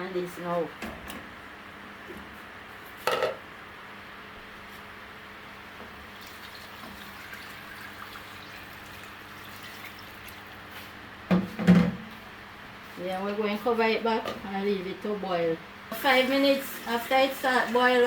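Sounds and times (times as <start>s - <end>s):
water pouring into a pot: 6.2s - 10.5s.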